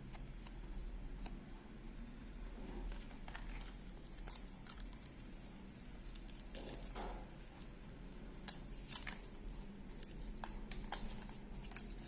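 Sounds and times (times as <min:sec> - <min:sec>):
paper rustling: 0:08.4 - 0:12.0.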